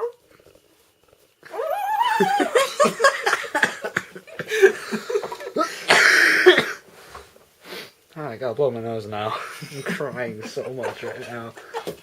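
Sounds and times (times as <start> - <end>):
laughter: 2.2 - 5.9, 9.4 - 12.0.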